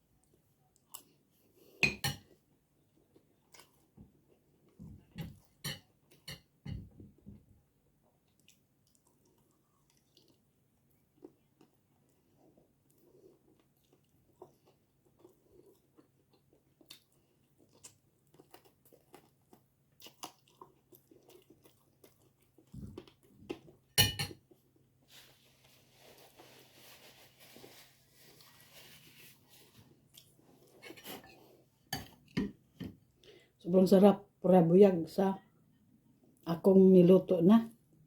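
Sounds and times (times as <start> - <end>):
chewing and mouth sounds: 8.1 - 23.9.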